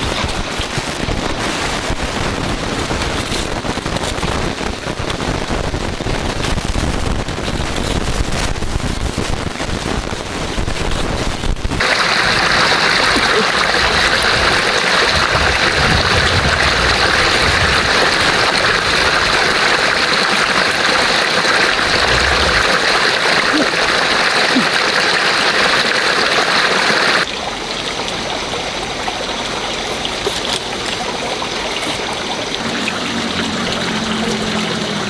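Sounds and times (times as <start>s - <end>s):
water rushing: 0.0s - 7.9s, 11.2s - 35.0s
low rumble: 13.7s - 20.0s, 21.7s - 23.4s.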